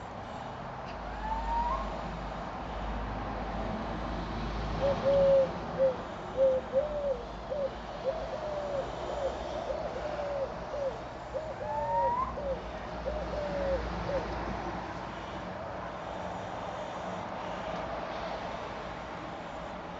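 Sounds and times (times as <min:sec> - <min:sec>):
bird hooting calls: 0:01.1 - 0:02.0, 0:04.8 - 0:14.4.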